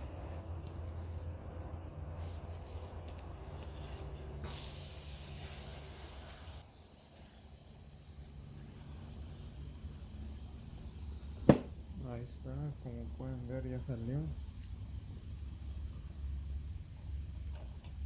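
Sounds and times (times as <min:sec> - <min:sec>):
air hissing from tyre: 0:04.4 - 0:18.0.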